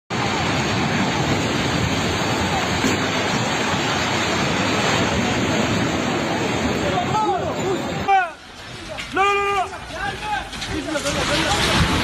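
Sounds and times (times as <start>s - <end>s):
loud rushing noise: 0.1s - 8.9s.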